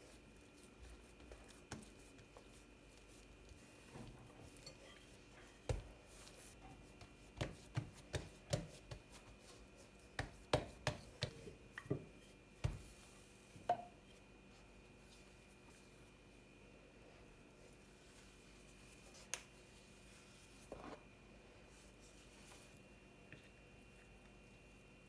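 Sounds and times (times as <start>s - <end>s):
knife chopping on a cutting board: 7.0s - 9.1s, 10.1s - 12.9s.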